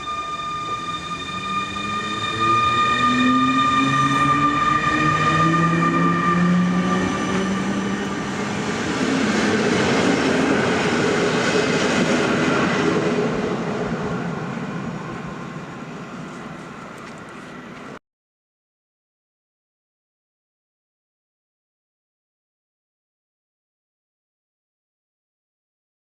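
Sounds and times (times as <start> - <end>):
electric locomotive motor whine: 0.0 - 18.0
train rolling past rumble: 0.0 - 18.0.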